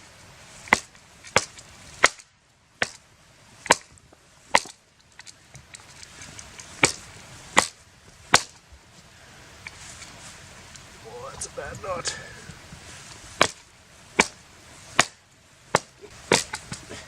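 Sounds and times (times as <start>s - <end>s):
blade chopping dry wood: 0.7s - 3.0s, 3.6s - 4.8s, 6.8s - 7.0s, 7.6s - 8.6s, 13.4s - 13.6s, 14.2s - 14.4s, 15.0s - 16.9s.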